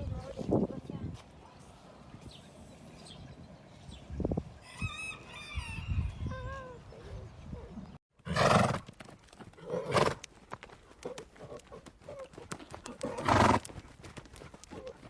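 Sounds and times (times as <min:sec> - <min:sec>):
hoof clops: 0:08.5 - 0:15.0.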